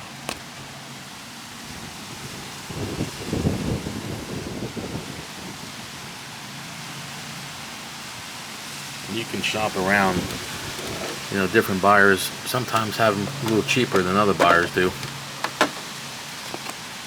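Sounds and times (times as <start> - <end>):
rustling and bumping handling noise: 9.5 - 17.0.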